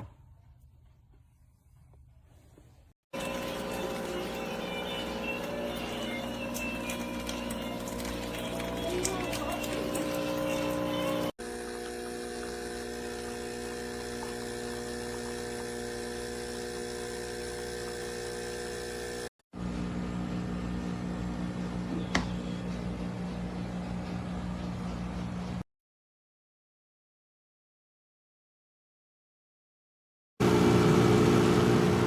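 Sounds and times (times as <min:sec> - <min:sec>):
espresso machine pump humming: 0:03.2 - 0:23.5, 0:30.4 - 0:32.0.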